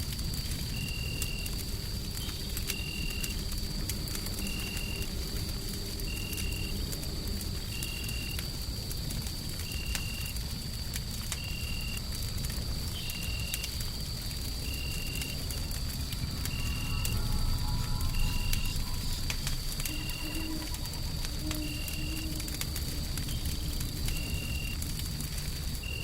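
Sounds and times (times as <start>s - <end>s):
wood fire crackling: 0.0s - 26.0s
steady low rumbling: 14.2s - 25.8s
faint high whine: 14.7s - 24.8s.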